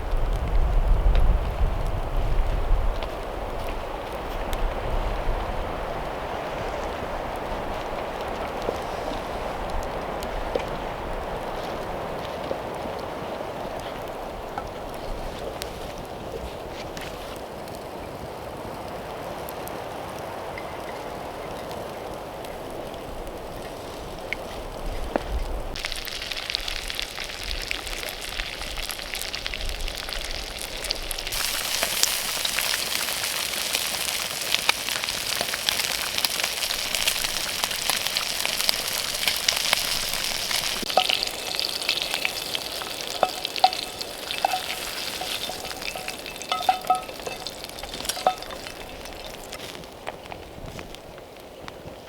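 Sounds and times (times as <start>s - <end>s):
campfire popping and crackling: 0.0s - 52.0s
sausages sizzling in a metal cup: 25.7s - 49.9s.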